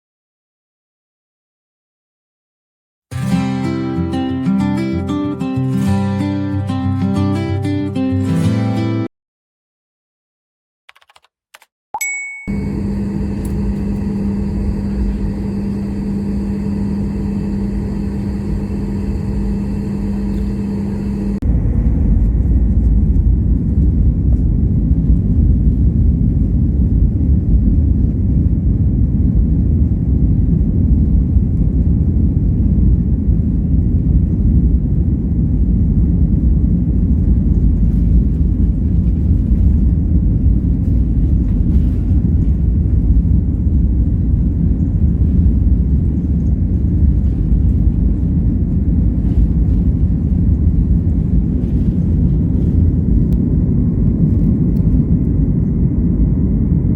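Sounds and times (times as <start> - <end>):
jet engine cabin rumble: 12.5 - 56.9.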